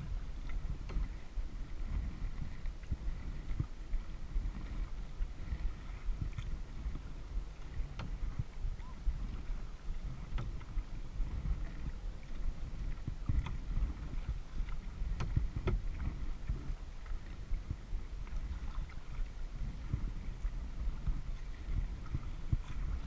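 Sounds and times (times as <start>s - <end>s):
paddle splashes and clicks: 0.0s - 23.0s
water and wind rumble: 0.0s - 23.0s.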